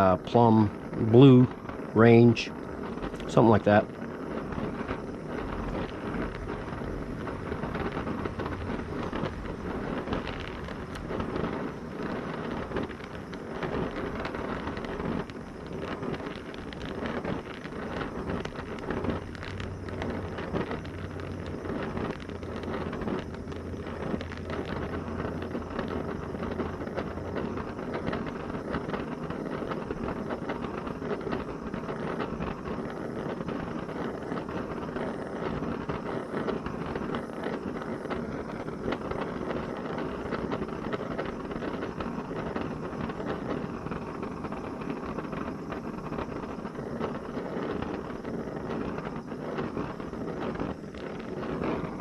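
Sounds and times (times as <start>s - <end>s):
gas torch flame rushing: 0.0s - 52.0s
low hum: 0.2s - 15.1s.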